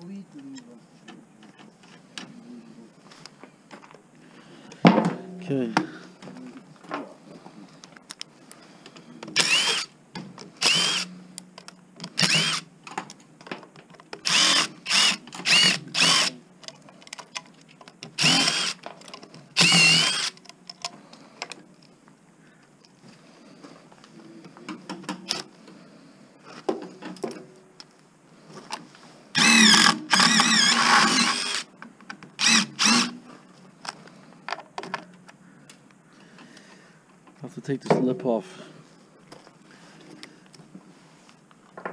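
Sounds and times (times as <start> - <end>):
power drill whining bursts: 9.4 - 9.9, 10.6 - 11.1, 12.2 - 12.7, 14.2 - 16.4, 18.2 - 18.8, 19.6 - 20.4, 29.4 - 31.7, 32.4 - 33.2.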